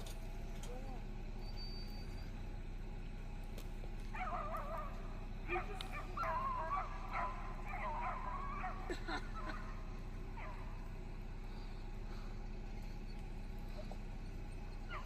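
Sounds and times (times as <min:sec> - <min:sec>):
dogs baying: 0:03.9 - 0:15.0.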